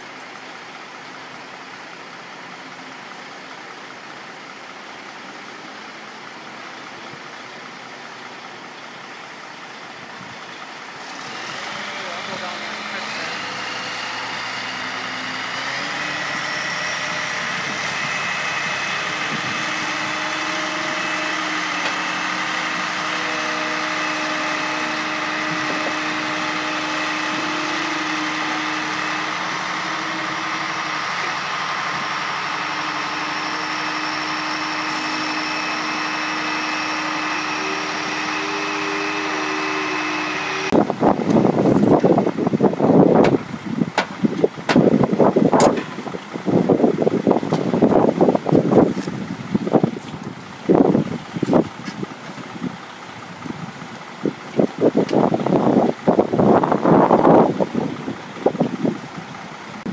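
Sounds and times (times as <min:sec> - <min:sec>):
mechanical drone: 0:11.0 - 0:43.7
wind gusts on microphone: 0:40.7 - 0:52.8, 0:53.5 - 0:59.9.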